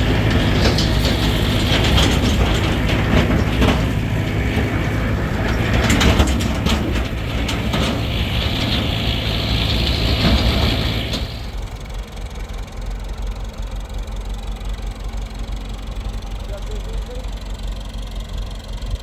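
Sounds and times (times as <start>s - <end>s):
mechanical rattle and clatter: 0.0s - 12.7s
engine running: 0.0s - 19.0s.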